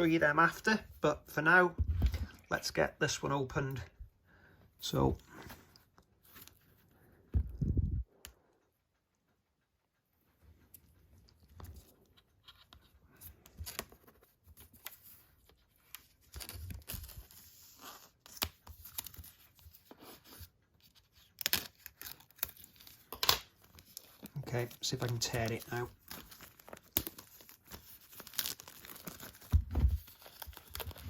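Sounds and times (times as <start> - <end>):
packaging scratching and crinkling: 16.0 - 31.0.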